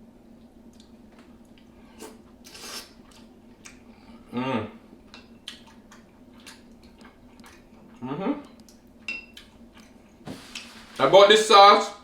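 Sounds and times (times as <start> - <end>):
slurping: 1.9 - 3.3
person humming mm: 4.3 - 4.8, 8.0 - 8.5
wet chewing smacks: 5.4 - 10.0.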